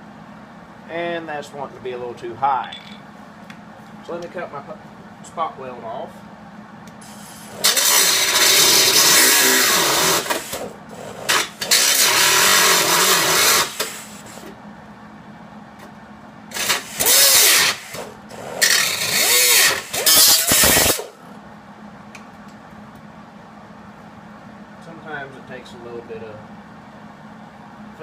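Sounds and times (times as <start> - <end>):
grinder cutting steel: 7.5 - 10.6, 11.2 - 14.1, 16.5 - 21.1.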